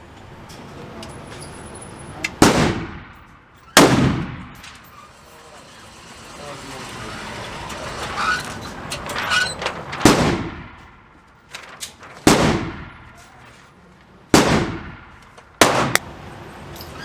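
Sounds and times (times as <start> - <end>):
gunshots with ringing tail: 2.4 - 3.2, 3.8 - 4.6, 10.0 - 10.8, 12.3 - 13.1, 14.4 - 16.0.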